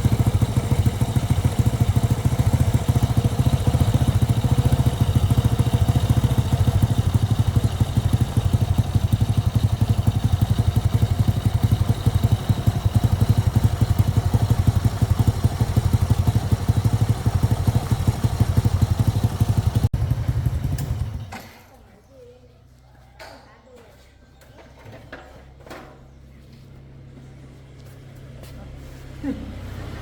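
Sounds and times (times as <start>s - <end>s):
motorcycle engine idling: 0.0s - 21.8s.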